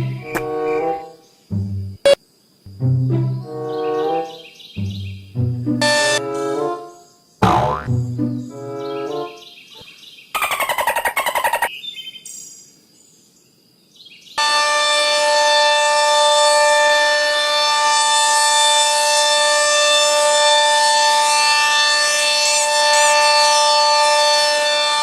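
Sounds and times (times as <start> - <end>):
siren steady tone: 5.8 - 6.2, 14.4 - 25.0.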